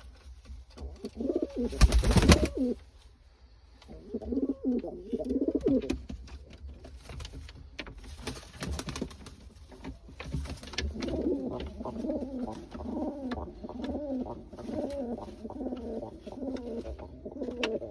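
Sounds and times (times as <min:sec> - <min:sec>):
pigeons cooing: 0:00.8 - 0:02.8, 0:03.9 - 0:06.0, 0:10.7 - 0:17.9.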